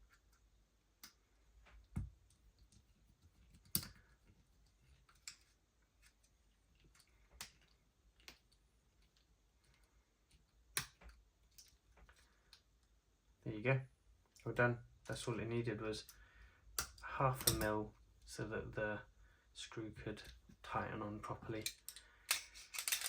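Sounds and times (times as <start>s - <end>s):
small metal parts clicking: 21.6s - 23.0s.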